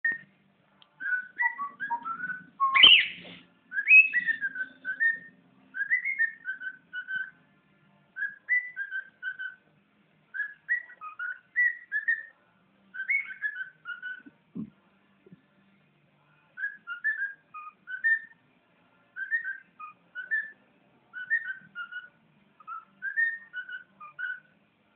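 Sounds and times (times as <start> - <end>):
bird whistling: 1.0 - 7.4, 8.2 - 9.6, 10.3 - 12.3, 13.0 - 14.3, 16.6 - 18.4, 19.2 - 24.5.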